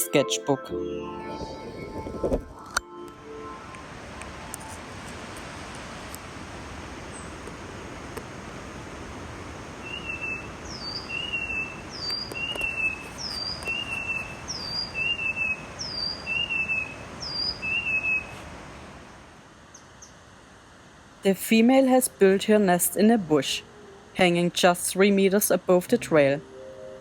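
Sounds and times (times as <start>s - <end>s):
forest background noise: 2.6s - 27.0s
bird whistling two-note phrase: 9.9s - 18.3s.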